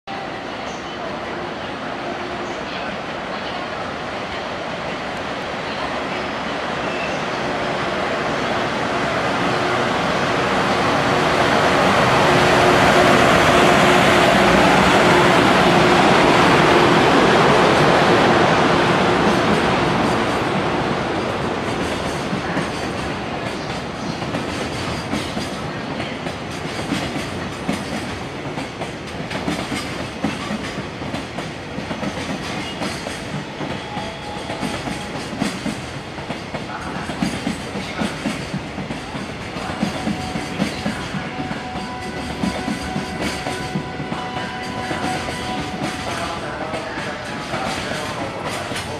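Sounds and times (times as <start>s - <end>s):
electric locomotive passing: 0.1s - 48.9s
wheels clickety-clack over rail joints: 21.6s - 48.9s.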